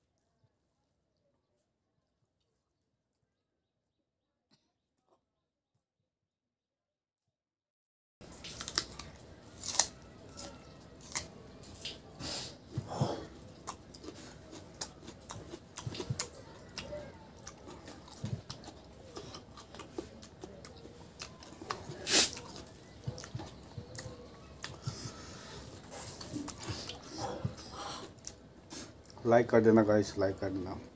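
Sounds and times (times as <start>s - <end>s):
person chewing with lip smacks: 12.7s - 29.2s.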